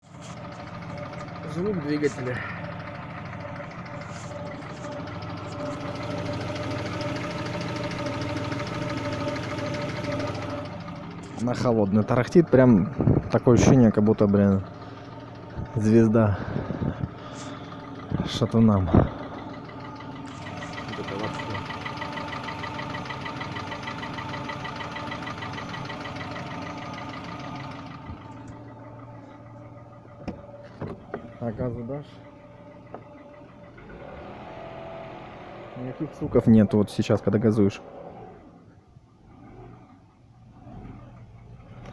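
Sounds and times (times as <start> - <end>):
car engine idling: 0.0 - 41.9
fast rattling engine knock: 0.1 - 32.0.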